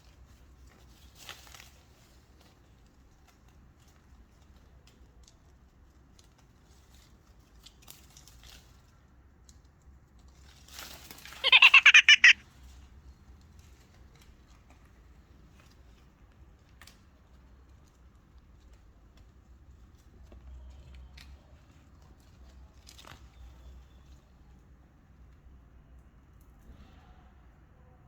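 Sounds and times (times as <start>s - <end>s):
parakeet burst of rapid pulses: 11.4s - 12.4s.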